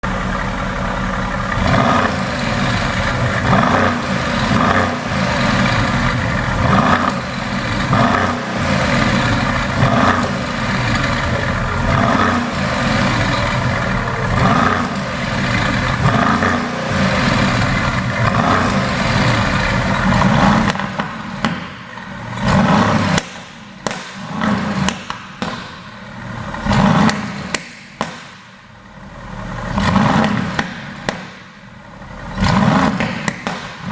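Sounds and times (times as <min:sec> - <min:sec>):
car engine revving: 0:00.0 - 0:33.9
exhaust pops and crackles: 0:00.0 - 0:33.9.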